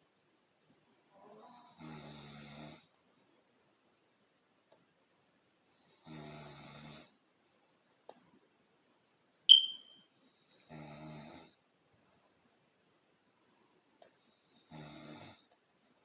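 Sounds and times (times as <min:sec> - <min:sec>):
short high-pitched chirp: 0:09.5 - 0:10.0.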